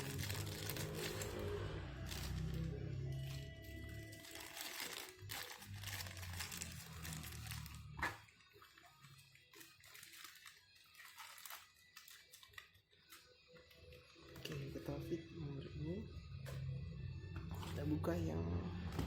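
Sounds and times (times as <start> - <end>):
packaging rustling and crinkling: 0.0 - 13.2.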